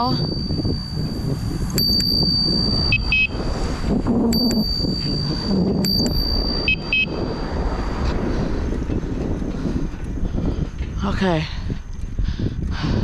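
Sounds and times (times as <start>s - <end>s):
bicycle bell ringing: 0.0s - 3.6s, 4.2s - 8.1s
bicycle road noise: 0.0s - 13.0s
wind: 0.0s - 13.0s.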